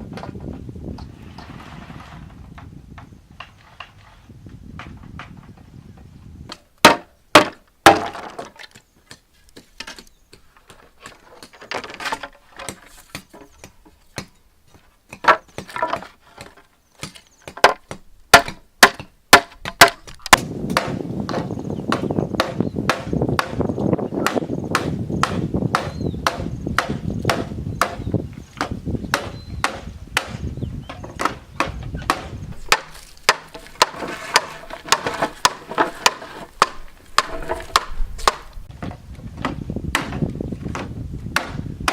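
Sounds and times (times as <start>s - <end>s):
blade chopping bamboo: 6.5s - 14.4s, 15.1s - 23.6s, 24.2s - 28.0s, 28.6s - 41.9s
rough rasping noise: 29.1s - 38.7s.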